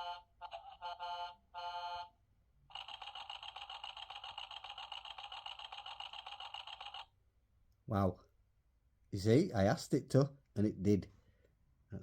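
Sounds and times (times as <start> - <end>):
toy fast-buzzing electronic tone: 2.7 - 7.1.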